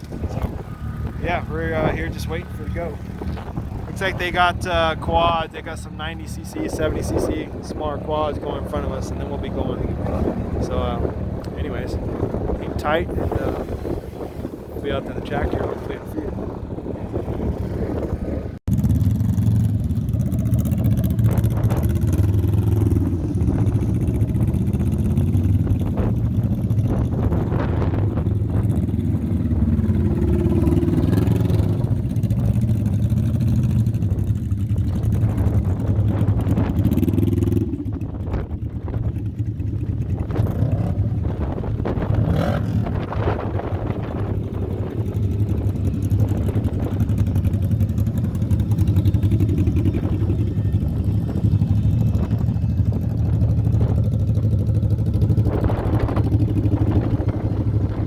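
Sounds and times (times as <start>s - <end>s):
race vehicle engines revving: 0.0s - 58.0s.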